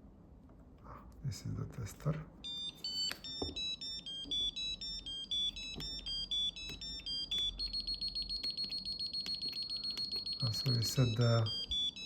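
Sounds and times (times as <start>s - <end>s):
electronic beeps changing pitch: 3.2s - 12.0s
fast high-pitched beeping: 3.3s - 12.0s.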